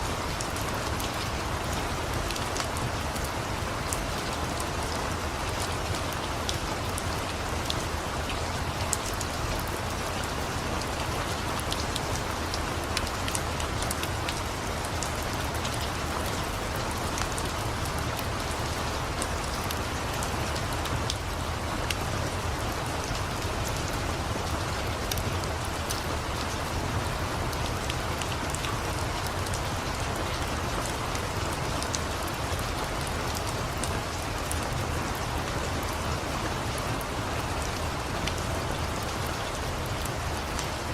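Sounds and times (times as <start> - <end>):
steady rain hissing: 0.0 - 40.9.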